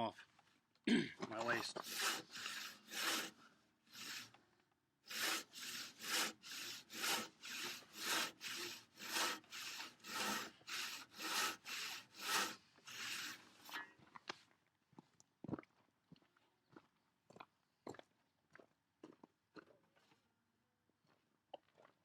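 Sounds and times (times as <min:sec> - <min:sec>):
hand saw cutting wood: 0:01.4 - 0:04.4, 0:05.0 - 0:13.9.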